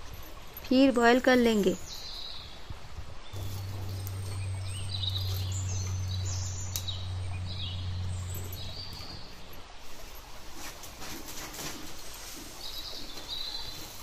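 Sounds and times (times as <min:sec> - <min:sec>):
birds chirping: 0:00.0 - 0:11.1, 0:12.4 - 0:14.0
steady low hum: 0:01.3 - 0:10.9.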